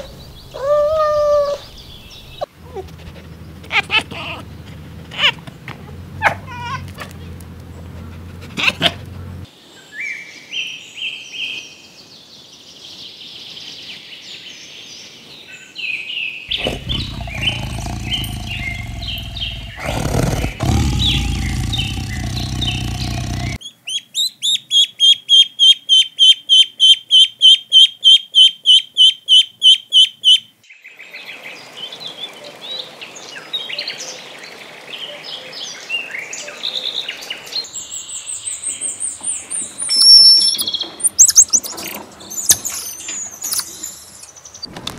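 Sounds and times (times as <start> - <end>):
birds chirping: 16.5 - 23.6, 37.3 - 43.3
loud high repeated bird call: 23.6 - 30.5.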